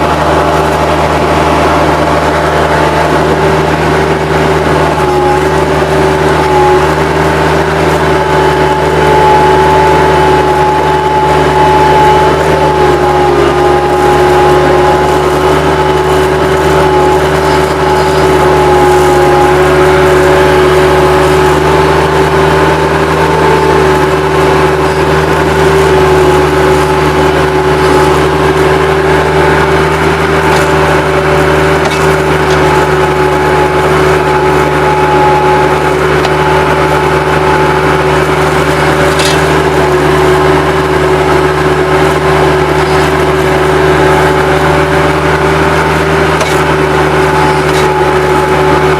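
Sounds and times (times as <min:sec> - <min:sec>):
diesel engine running: 0:00.0 - 0:48.9
high whine: 0:00.0 - 0:48.9.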